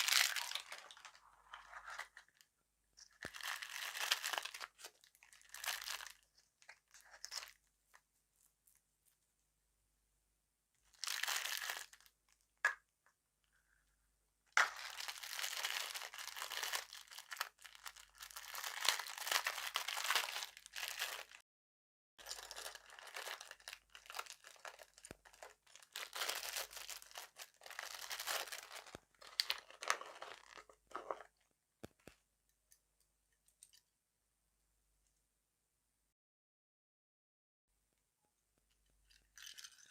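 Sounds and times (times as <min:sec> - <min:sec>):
crunching and chewing candy: 0:22.2 - 0:31.3.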